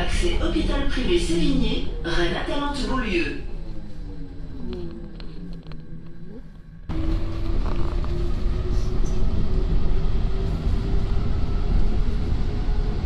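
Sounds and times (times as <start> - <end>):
metro train rumble: 0.0 - 13.0.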